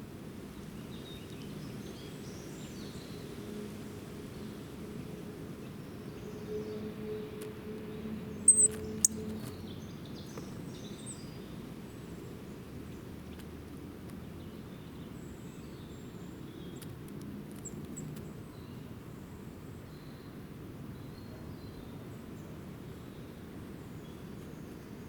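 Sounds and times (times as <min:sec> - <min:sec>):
small birds chirping: 0:08.4 - 0:11.5, 0:17.6 - 0:18.8.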